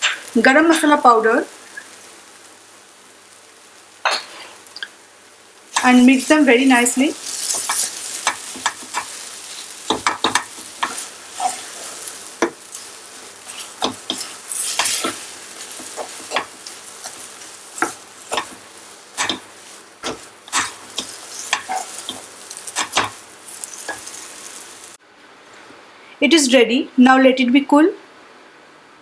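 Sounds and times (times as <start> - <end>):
paste sizzling in oil: 0.0 - 25.0
spatula scraping a pan: 5.6 - 25.0.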